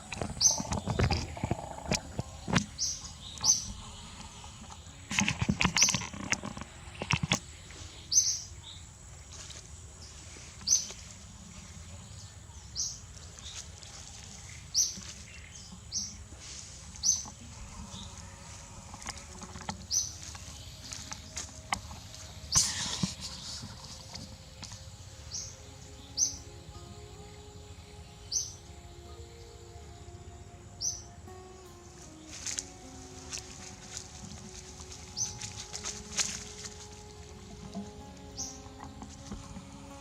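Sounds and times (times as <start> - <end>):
sharp clicks and rustling: 0.0 - 7.6
bird chirping: 0.0 - 9.2, 10.0 - 40.0.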